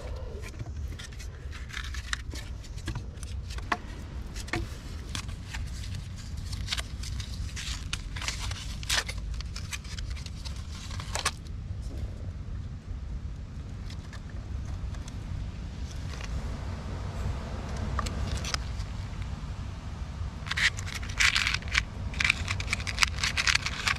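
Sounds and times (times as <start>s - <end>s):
foil packet crinkling and tearing: 4.4s - 11.5s, 20.5s - 23.9s.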